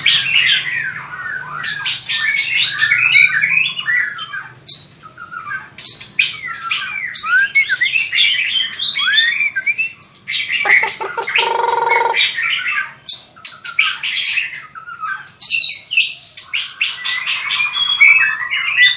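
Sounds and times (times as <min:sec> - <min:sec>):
rapid bird trill: 0:00.0 - 0:14.6
songbird singing varied song: 0:06.3 - 0:14.5
harsh buzzing bird call: 0:10.6 - 0:12.5.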